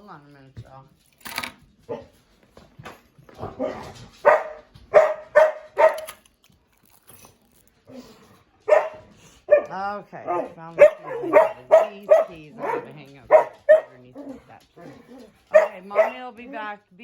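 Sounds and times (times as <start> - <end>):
dog barking: 1.9 - 2.2, 3.4 - 6.2, 8.6 - 16.4.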